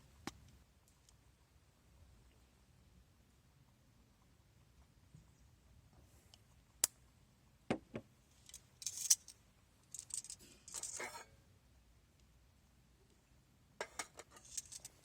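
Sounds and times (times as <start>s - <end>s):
metallic rattling: 13.9s - 15.0s.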